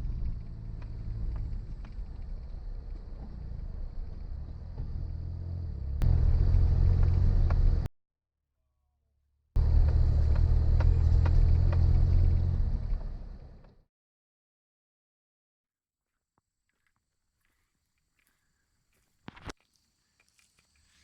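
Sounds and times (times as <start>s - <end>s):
engine and tyres rumble: 0.0s - 7.9s, 9.6s - 13.8s.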